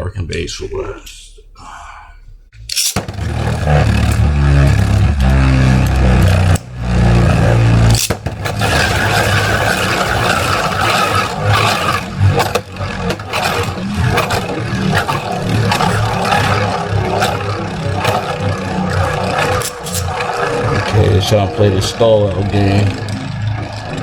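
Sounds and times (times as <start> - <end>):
spinning tops clacking together: 2.6 - 3.1
spinning tops whirring and scraping: 2.6 - 24.0.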